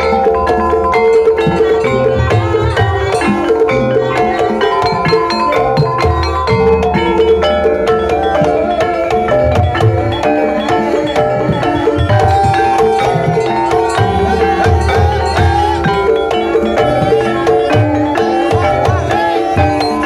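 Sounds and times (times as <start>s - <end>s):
hand drums beating: 0.0s - 20.0s
wavering held melodic line: 0.0s - 20.0s.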